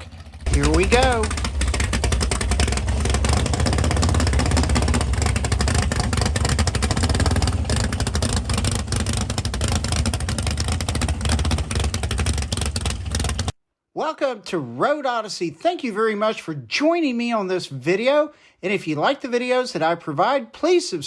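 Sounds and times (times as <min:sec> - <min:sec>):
car engine running: 0:00.0 - 0:13.5.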